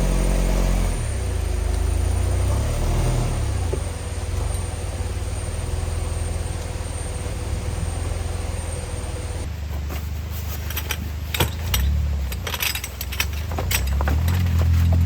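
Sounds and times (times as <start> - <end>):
vehicle rumble: 0.0 - 15.0
sharp clicks and light knocks: 10.7 - 15.0.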